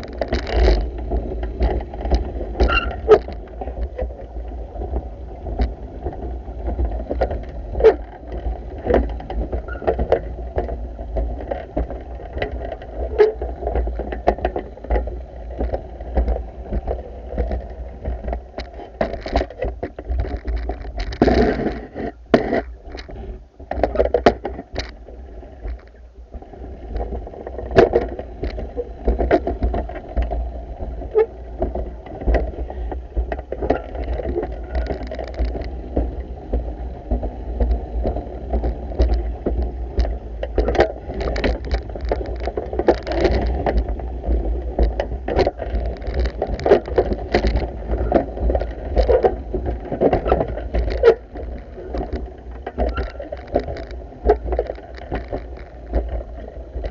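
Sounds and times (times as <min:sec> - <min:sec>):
knocks and clicks: 0:33.2 - 0:56.9.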